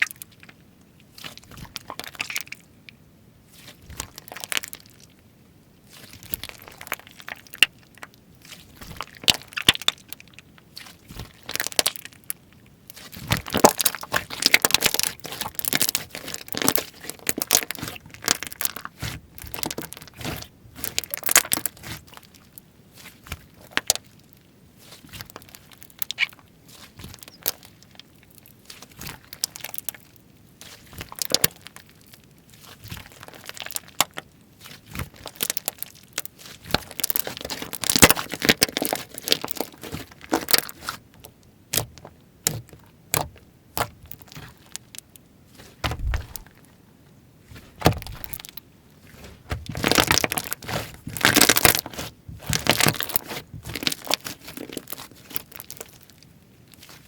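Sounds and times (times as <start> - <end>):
slime crackling and popping: 3.6 - 5.0, 5.9 - 46.6, 47.5 - 57.0
dull thud: 45.8 - 46.5, 47.6 - 48.4.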